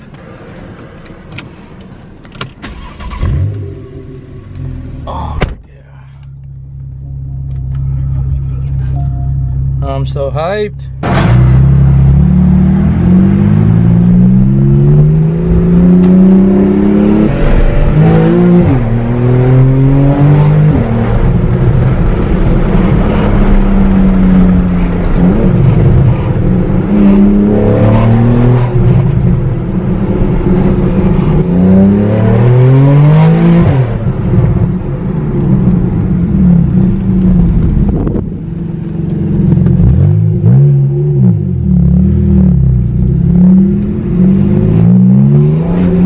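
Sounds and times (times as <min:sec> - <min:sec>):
car engine accelerating hard: 0:11.0 - 0:46.0.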